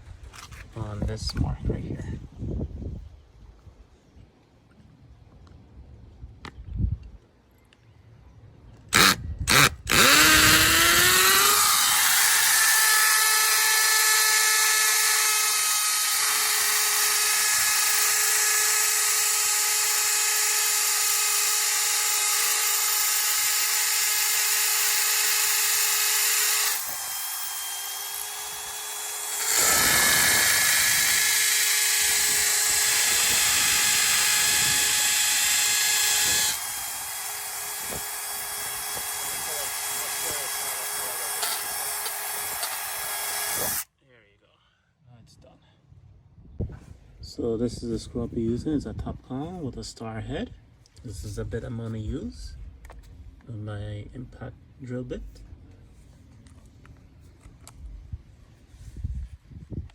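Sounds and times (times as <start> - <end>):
hammer drill drilling masonry: 8.9 - 43.9.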